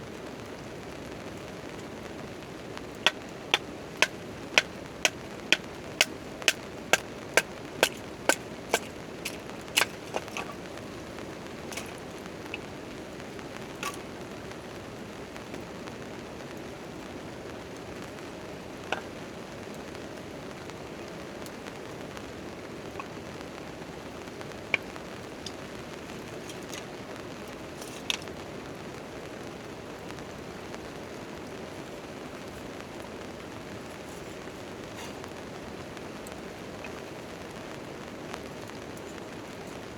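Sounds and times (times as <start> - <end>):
campfire crackling: 0.0 - 39.9
rain on a tent tarp: 0.0 - 39.9
sharp evenly spaced knocks: 3.1 - 10.5.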